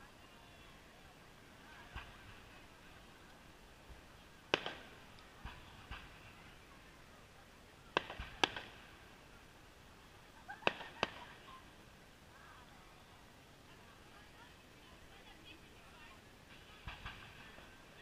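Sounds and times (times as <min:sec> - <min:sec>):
distant fireworks cracking: 0:01.5 - 0:11.8, 0:16.5 - 0:18.0.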